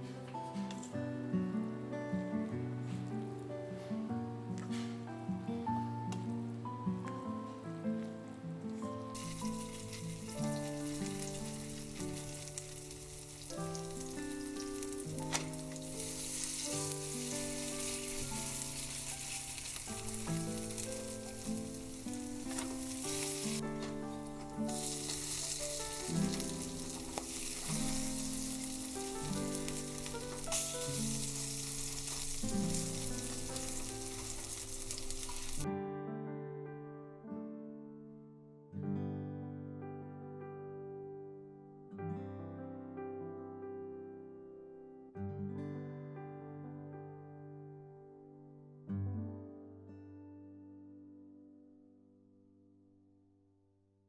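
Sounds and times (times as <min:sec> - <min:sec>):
soft acoustic guitar music: 0:00.0 - 0:53.2
pancakes sizzling in oil: 0:09.1 - 0:35.6.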